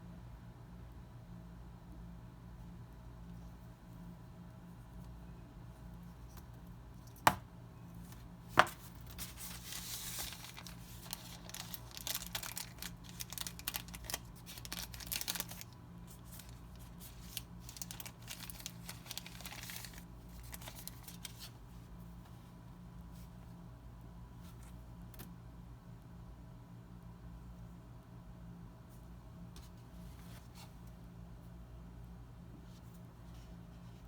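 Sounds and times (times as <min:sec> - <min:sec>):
packaging crinkling and tearing: 0:08.8 - 0:21.5.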